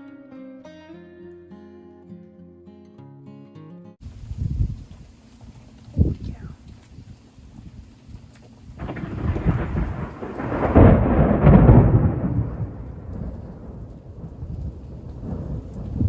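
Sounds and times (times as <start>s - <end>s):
thunder rumbling: 8.8s - 16.0s.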